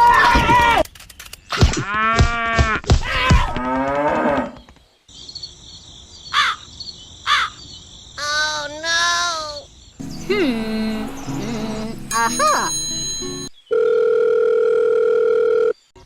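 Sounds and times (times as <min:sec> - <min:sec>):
crickets chirring: 0:05.0 - 0:13.6
crow cawing: 0:06.3 - 0:07.6.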